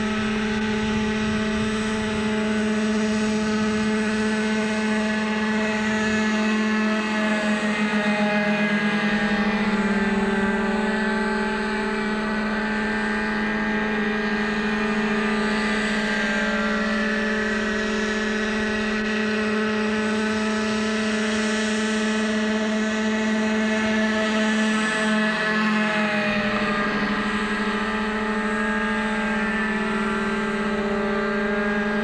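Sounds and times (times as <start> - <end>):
model helicopter engine buzzing: 0.0 - 32.0.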